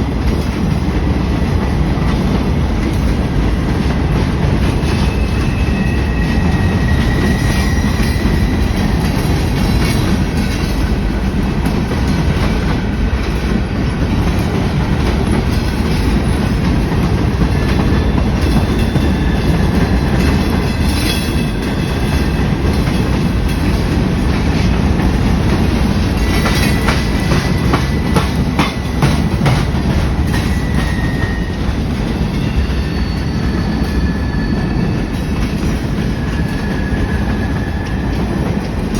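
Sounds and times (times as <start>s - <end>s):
train cars rumbling past: 0.0s - 38.9s
wheels clacking over rails: 0.2s - 38.9s
high wheel squeals: 4.8s - 10.2s, 17.6s - 23.0s, 30.2s - 38.5s.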